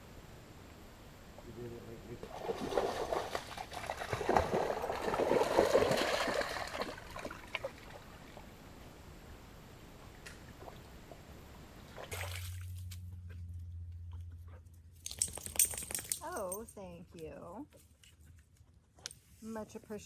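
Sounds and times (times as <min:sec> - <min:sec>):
steady low hum: 0:00.0 - 0:05.4, 0:06.7 - 0:20.0
water splashing in a creek: 0:02.2 - 0:08.5, 0:10.2 - 0:13.0
water lapping and trickling: 0:02.2 - 0:09.0, 0:10.0 - 0:14.4.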